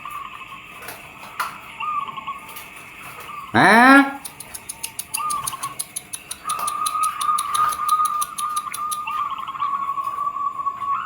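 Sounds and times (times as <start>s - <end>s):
fast high ticking: 3.6s - 9.1s.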